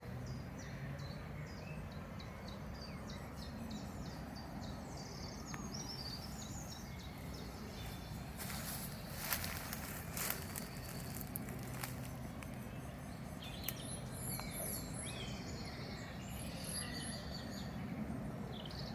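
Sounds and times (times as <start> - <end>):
small birds chirping: 0.1 - 18.9
crackling rustling: 7.8 - 12.6.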